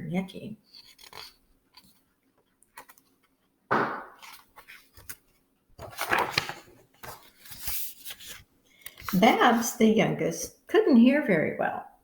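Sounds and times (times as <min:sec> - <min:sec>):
book page rustling: 0:00.6 - 0:09.4.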